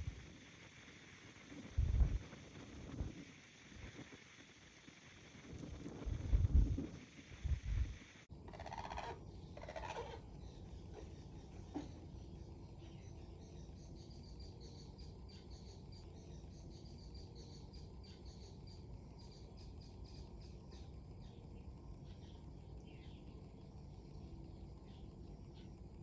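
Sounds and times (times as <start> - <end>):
wind rumble on microphone: 1.5 - 4.1, 5.4 - 8.2
small birds chirping: 9.3 - 26.0.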